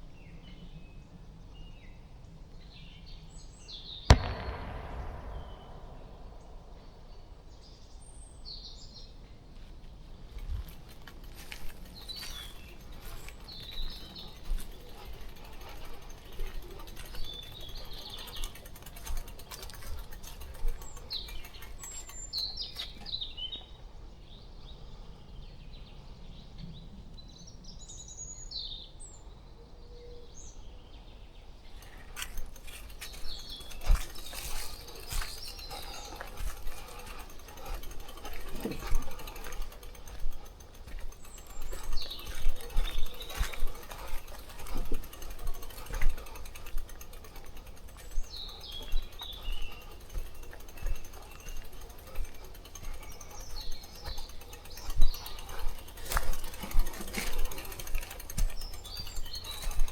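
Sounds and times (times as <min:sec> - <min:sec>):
small birds chirping: 0:00.0 - 0:59.9
sharp clicks and knocks: 0:04.1 - 0:07.4, 0:31.8 - 0:59.9
steady low rumble: 0:04.1 - 0:07.7.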